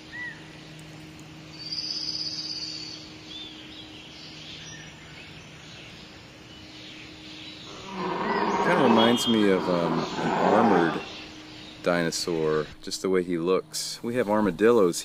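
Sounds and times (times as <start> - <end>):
faint low hum: 0.0 - 15.0
bird chirps: 1.5 - 12.0
high fast bird trill: 7.7 - 11.5.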